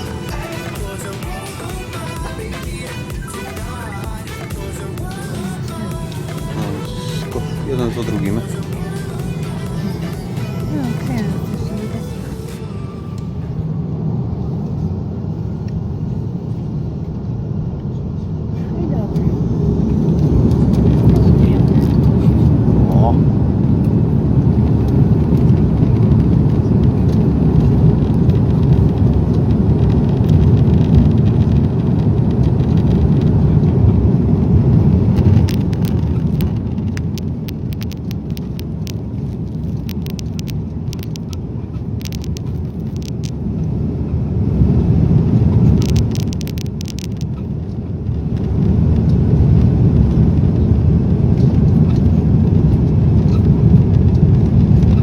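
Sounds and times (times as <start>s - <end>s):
aircraft cabin engine rumble: 0.0s - 55.0s
faint clicks: 35.2s - 43.4s.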